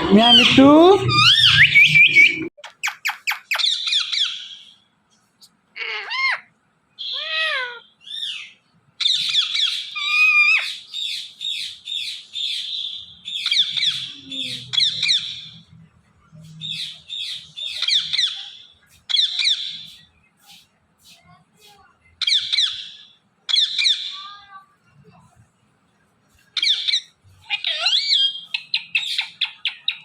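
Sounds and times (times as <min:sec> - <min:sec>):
parakeet chattering: 0:05.8 - 0:12.7, 0:26.6 - 0:30.0.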